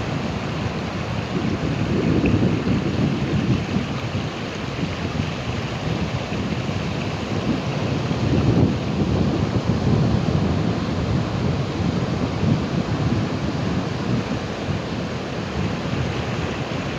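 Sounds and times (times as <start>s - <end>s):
ocean waves breaking: 0.0s - 16.9s
wind on microphone: 0.0s - 16.9s.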